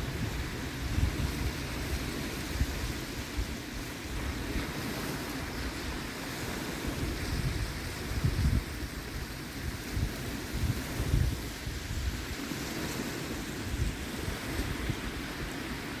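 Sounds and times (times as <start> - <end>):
surf washing on beach: 0.0 - 16.0
wind on microphone: 0.0 - 16.0.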